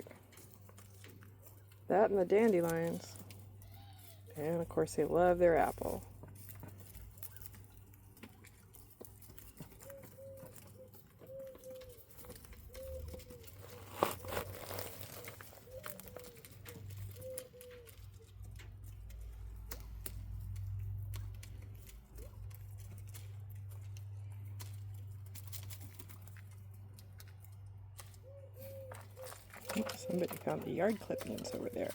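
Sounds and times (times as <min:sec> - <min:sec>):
birds pecking and scratching: 0:00.0 - 0:31.9
quail peeping calls: 0:09.3 - 0:13.9, 0:15.2 - 0:18.6, 0:28.0 - 0:31.9.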